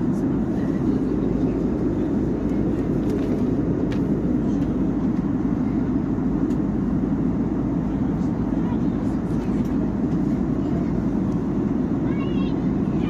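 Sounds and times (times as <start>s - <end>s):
airliner cabin noise: 0.0s - 13.0s.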